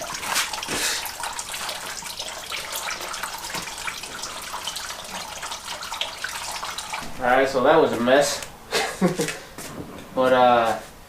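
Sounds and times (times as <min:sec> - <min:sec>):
liquid pouring stream: 0:00.0 - 0:08.4.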